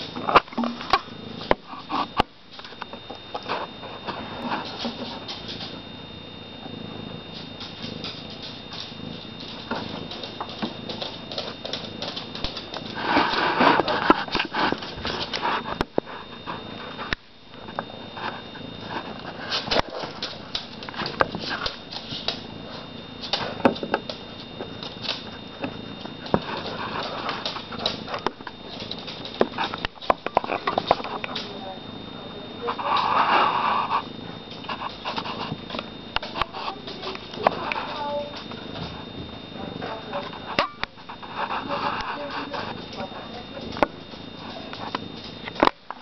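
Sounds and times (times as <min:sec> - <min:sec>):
kittens clicking and rustling: 0:00.0 - 0:46.0
thin steady high tone: 0:00.0 - 0:46.0.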